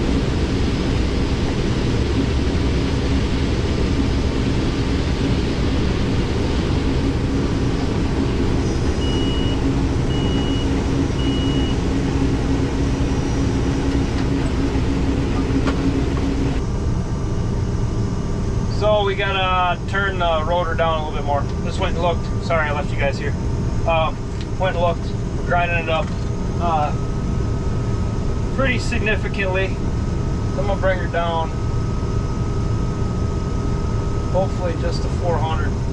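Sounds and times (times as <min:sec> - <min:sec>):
combine harvester running: 0:00.0 - 0:35.9
steady hum: 0:00.0 - 0:35.9
short electronic beeps: 0:08.9 - 0:11.8.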